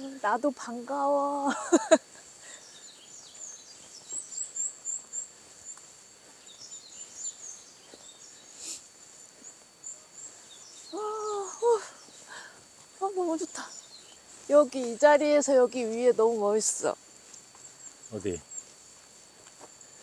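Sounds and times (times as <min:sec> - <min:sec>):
songbirds chirping and singing: 0:01.8 - 0:08.7, 0:09.4 - 0:12.3, 0:13.4 - 0:14.9.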